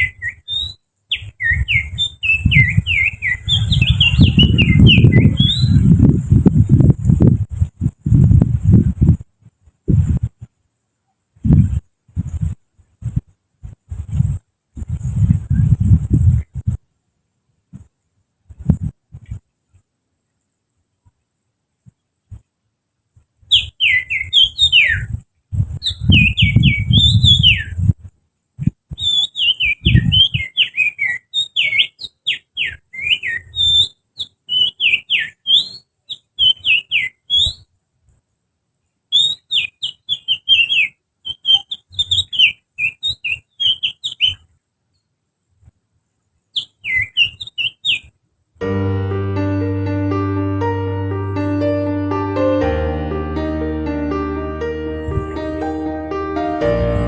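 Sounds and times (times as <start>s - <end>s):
person finger whistling birdsong: 0.0s - 5.8s
low rumble: 48.6s - 57.0s
piano music: 48.6s - 57.0s.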